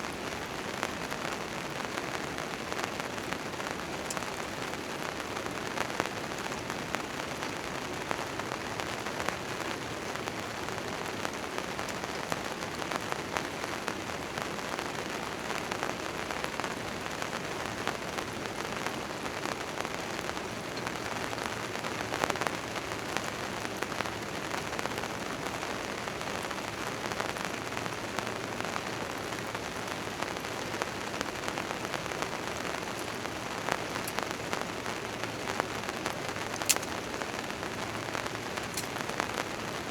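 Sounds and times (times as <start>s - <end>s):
rain on a tent tarp: 0.0s - 39.9s.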